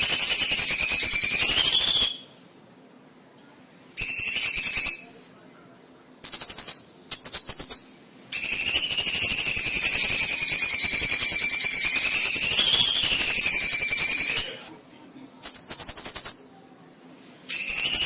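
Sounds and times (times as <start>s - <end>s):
bird singing rattling trill: 0.0s - 2.4s, 4.0s - 5.2s, 6.2s - 14.6s, 15.4s - 16.6s, 17.5s - 18.0s.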